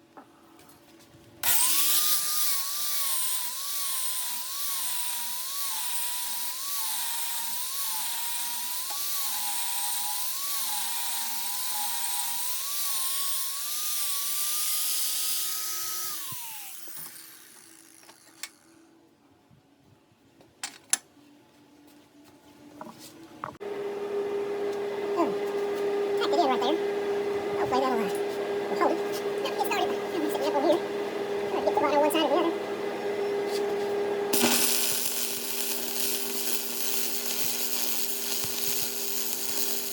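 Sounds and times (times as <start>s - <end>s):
electric grinder grinding steel: 1.4s - 18.8s, 34.3s - 39.9s.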